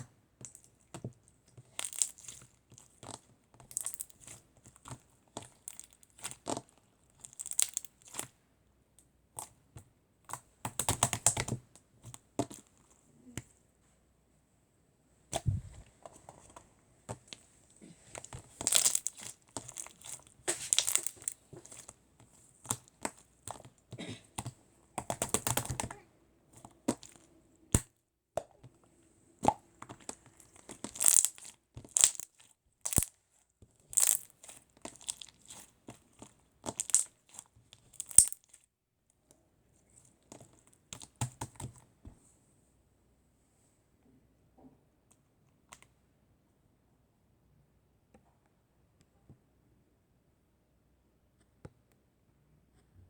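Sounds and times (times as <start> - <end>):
slime squished by hand: 1.6 - 8.4, 15.3 - 27.9, 29.4 - 33.1, 33.8 - 38.6.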